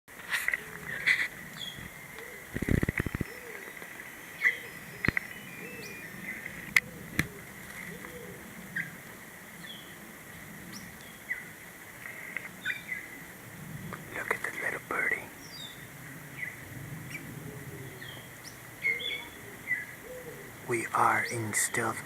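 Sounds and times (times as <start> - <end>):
birds chirping: 0.4 - 10.0, 10.7 - 13.3, 13.9 - 22.0
sharp clicks: 2.6 - 3.3, 5.0 - 5.4
steady high-pitched tone: 2.8 - 6.8.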